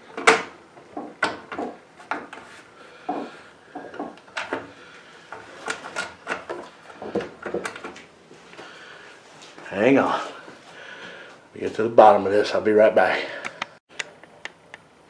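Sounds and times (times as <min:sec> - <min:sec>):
mower engine cover knocking and rattling: 0:00.0 - 0:02.4.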